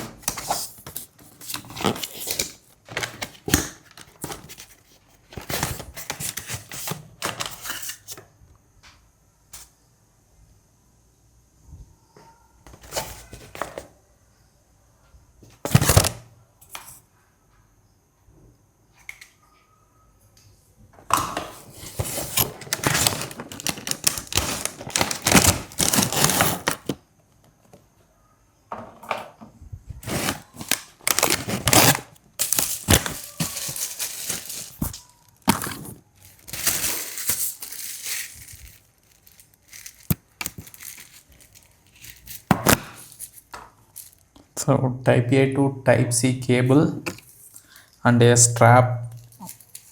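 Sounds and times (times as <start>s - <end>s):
paper and plastic rustling: 0.0s - 8.2s, 12.7s - 13.9s, 15.6s - 16.2s, 21.4s - 27.0s, 30.0s - 44.4s.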